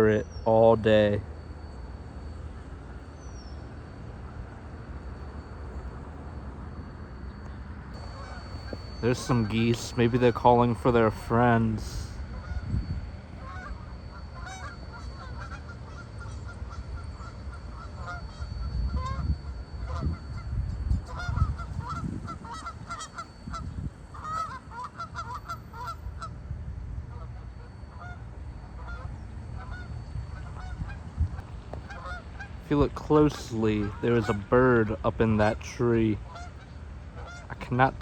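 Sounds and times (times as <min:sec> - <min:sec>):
geese honking: 0:08.0 - 0:12.7, 0:13.3 - 0:19.2, 0:21.0 - 0:26.4, 0:27.1 - 0:38.0.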